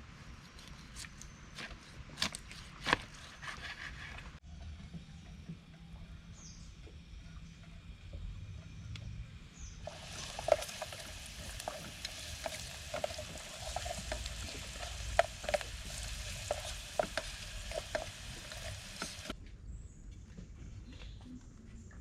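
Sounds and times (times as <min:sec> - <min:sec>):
food frying in hot oil: 0:09.8 - 0:19.4.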